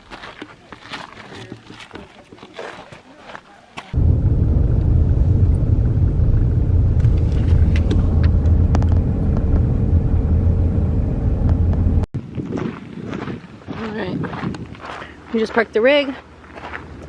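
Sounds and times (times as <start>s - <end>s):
engine and road rumble: 3.9s - 12.4s.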